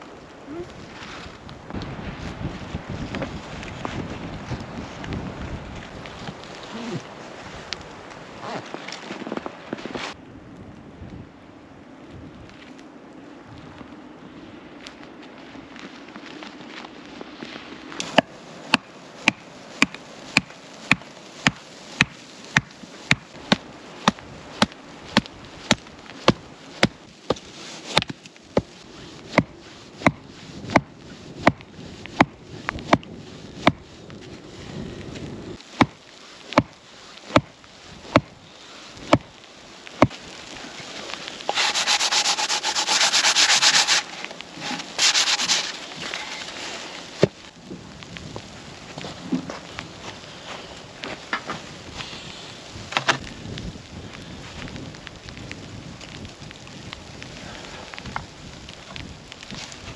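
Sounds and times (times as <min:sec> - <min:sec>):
rough scraping hiss: 0:40.3 - 0:47.4.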